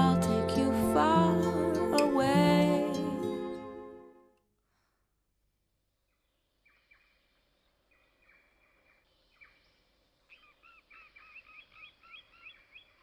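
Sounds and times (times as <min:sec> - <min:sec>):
faint bird chirps: 0:06.1 - 0:13.0.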